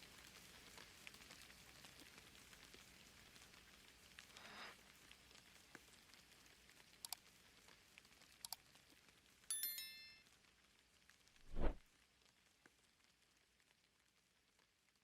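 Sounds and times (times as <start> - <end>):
short bright chime: 9.5 - 10.2.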